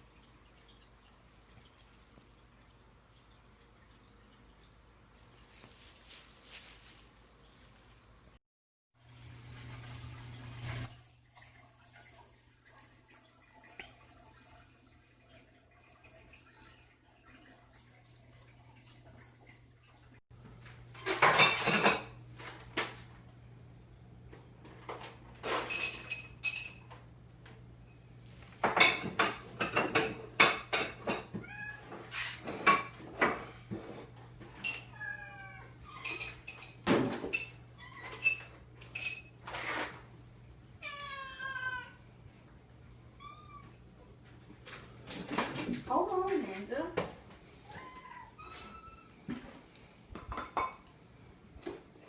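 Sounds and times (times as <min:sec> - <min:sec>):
dishes clinking and clattering: 0:20.4 - 0:23.0, 0:24.3 - 0:27.1, 0:27.9 - 0:35.3, 0:35.9 - 0:40.2, 0:44.2 - 0:46.1, 0:46.9 - 0:52.0
cats meowing: 0:31.3 - 0:32.4, 0:34.9 - 0:36.3, 0:40.8 - 0:42.0, 0:43.1 - 0:43.9, 0:47.7 - 0:49.3.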